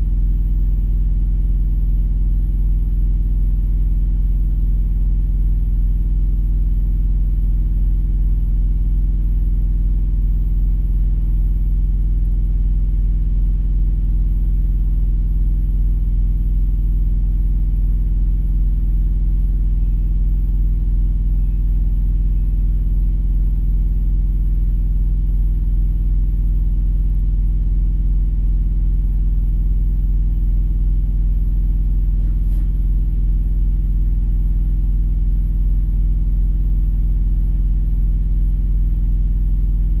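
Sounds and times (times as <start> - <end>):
vehicle engine idling: 17.4 - 40.0.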